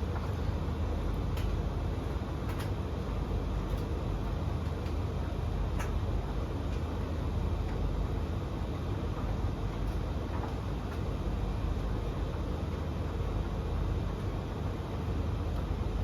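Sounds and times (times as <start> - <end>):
tumble dryers droning: 0.0 - 16.0.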